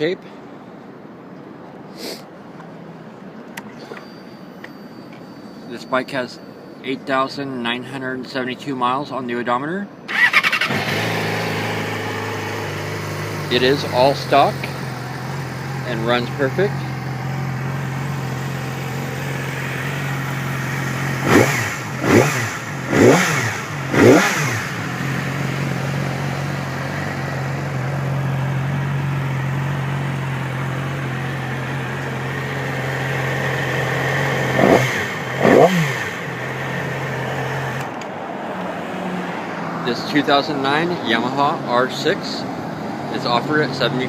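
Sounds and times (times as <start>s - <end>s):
motorcycle engine idling: 10.1s - 37.9s
motorcycle engine revving: 10.1s - 38.0s.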